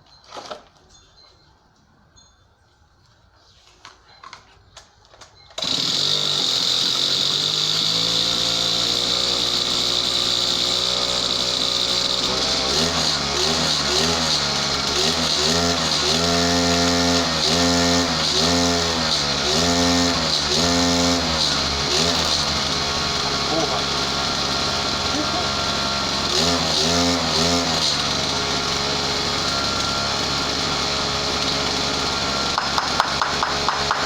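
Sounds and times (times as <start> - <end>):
brushcutter engine running: 5.6 - 34.0
engine throttle blips: 11.0 - 34.0.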